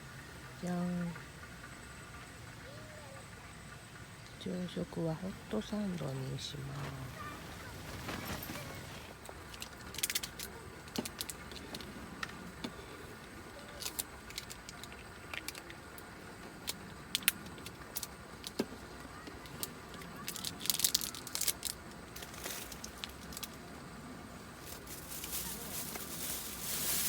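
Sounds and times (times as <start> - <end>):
camp cooking gear clinking: 5.5 - 23.9.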